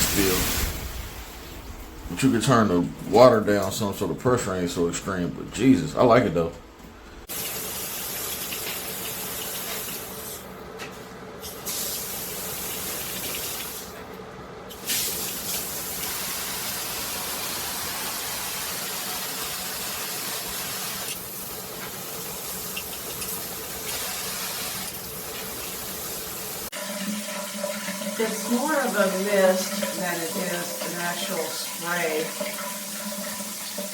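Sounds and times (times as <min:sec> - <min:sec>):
water spraying from shower head: 0:07.3 - 0:10.4, 0:14.7 - 0:26.7.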